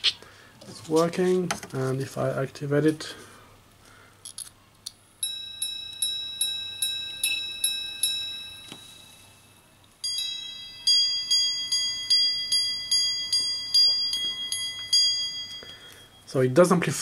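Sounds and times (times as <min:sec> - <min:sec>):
watch chiming on gongs: 0:05.2 - 0:16.4.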